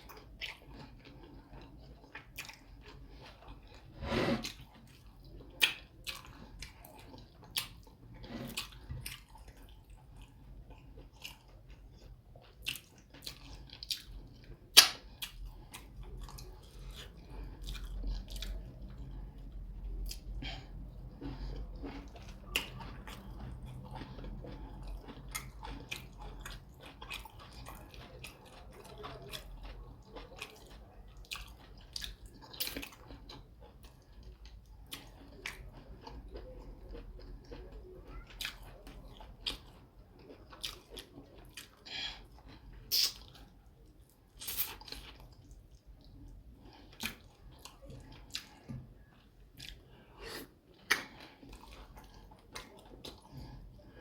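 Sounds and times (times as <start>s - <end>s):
low steady hum: 0.0s - 54.0s
person chewing food: 0.0s - 54.0s
wet mouth smacks: 42.9s - 43.2s
lip clicks: 42.9s - 43.3s.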